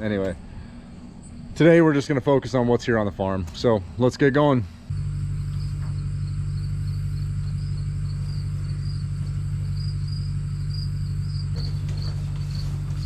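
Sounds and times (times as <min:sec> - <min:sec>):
engine idling: 0:04.7 - 0:13.0
crickets chirping: 0:04.9 - 0:13.0.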